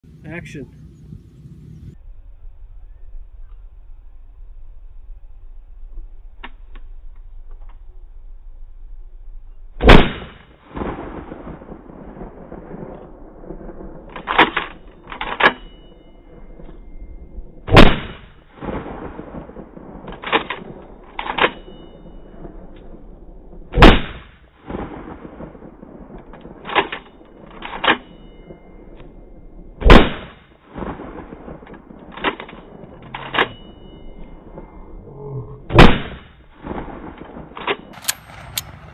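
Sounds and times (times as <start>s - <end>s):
shotgun blasts: 9.8s - 12.8s, 17.6s - 22.1s, 23.0s - 25.9s, 29.8s - 33.7s, 35.7s - 38.9s.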